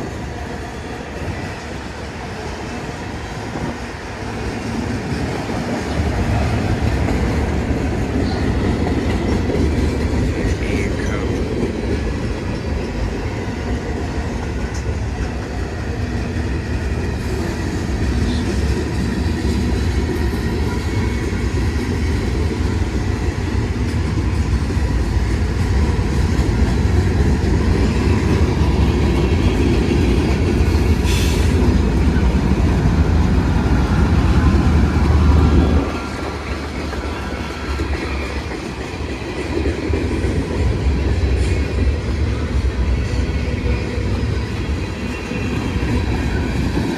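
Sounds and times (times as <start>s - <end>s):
freight train rumbling past: 0.0s - 46.9s
railcar wheels clattering on rails: 0.0s - 46.9s.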